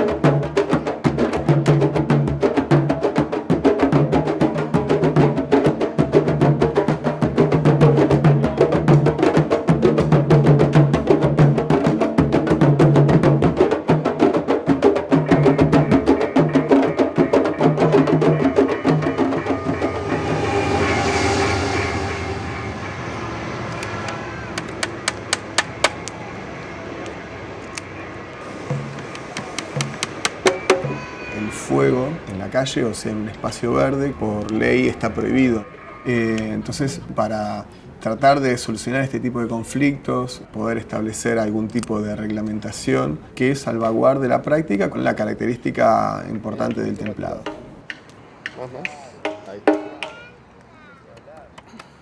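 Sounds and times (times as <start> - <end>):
hand and stick drums: 0.0 - 21.9, 23.7 - 26.2, 28.4 - 38.0, 40.8 - 50.5
hissing swell: 14.8 - 38.2
sharp clicks: 29.0 - 30.5.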